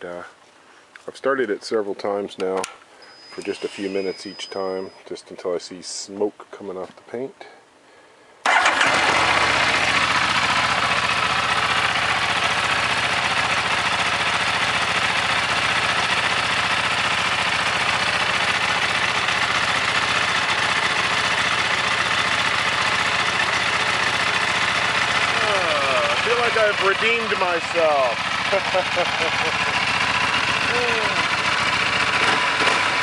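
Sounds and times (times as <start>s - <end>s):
motorcycle engine idling: 8.5s - 33.0s.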